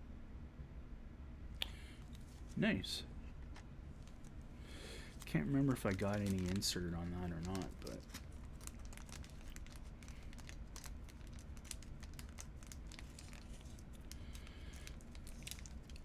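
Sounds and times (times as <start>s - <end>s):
plastic packaging crinkling: 5.0s - 16.0s.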